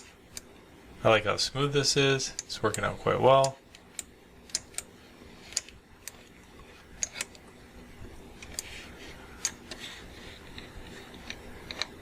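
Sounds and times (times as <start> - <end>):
faint steady background hum: 0.0 - 12.0.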